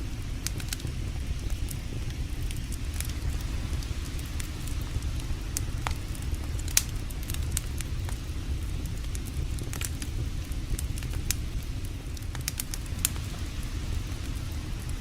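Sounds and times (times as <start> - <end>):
campfire crackling and popping: 0.0 - 15.0
low rumble: 0.0 - 15.0.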